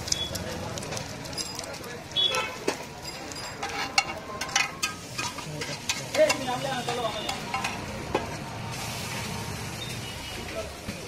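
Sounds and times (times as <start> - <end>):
metal utensils clinking: 0.0 - 8.3
food sizzling on a griddle: 0.0 - 11.0.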